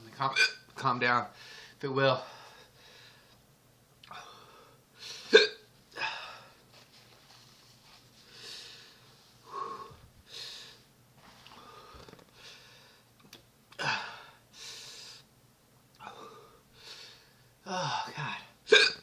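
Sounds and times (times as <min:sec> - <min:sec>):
man breathing hard and wheezing: 0:04.1 - 0:05.3, 0:08.2 - 0:10.9, 0:11.5 - 0:13.1, 0:13.8 - 0:15.3, 0:16.0 - 0:18.4.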